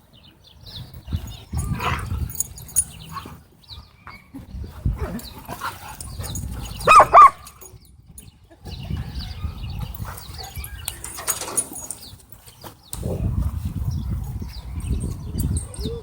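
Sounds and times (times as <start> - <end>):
dog barking: 6.8 - 7.4.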